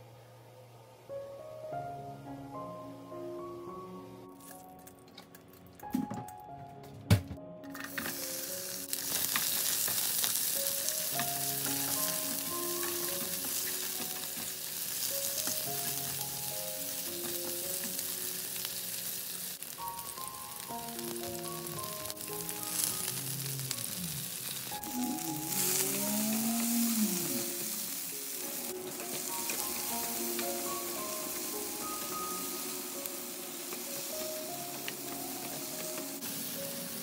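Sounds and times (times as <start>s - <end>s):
soft background music: 0.0s - 37.0s
onions sizzling in hot oil: 7.7s - 37.0s.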